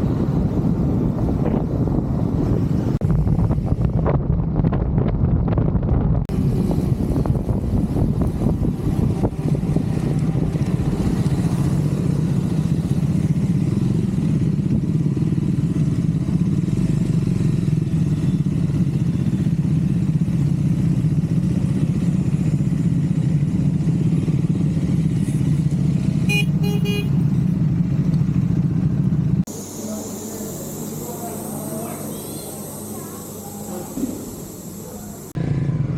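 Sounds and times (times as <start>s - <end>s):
motorcycle engine running: 0.0s - 35.9s
motorcycle horn: 26.2s - 27.3s, 29.5s - 35.0s.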